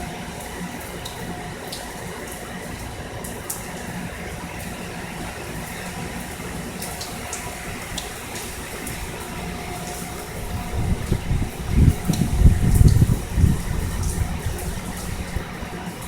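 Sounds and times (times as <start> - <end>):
heavy rain: 0.0 - 16.0
running water: 0.0 - 16.0
water dripping: 0.0 - 16.0
wind buffeting microphone: 8.6 - 16.0.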